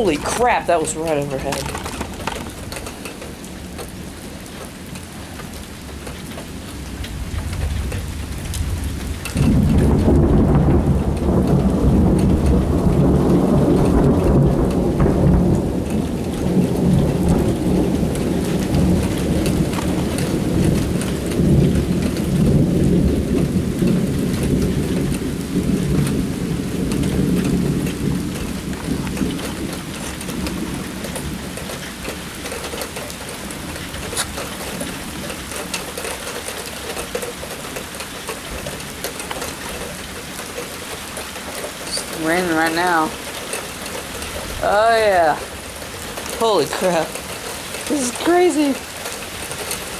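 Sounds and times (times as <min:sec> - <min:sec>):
thunder rumbling: 0:00.0 - 0:02.9, 0:06.2 - 0:36.1
heavy rain: 0:00.0 - 0:49.9.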